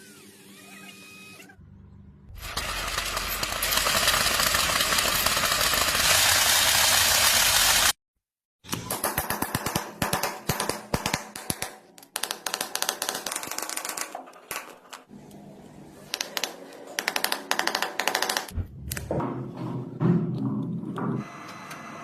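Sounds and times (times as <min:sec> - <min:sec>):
low hum: 0:18.5 - 0:21.8.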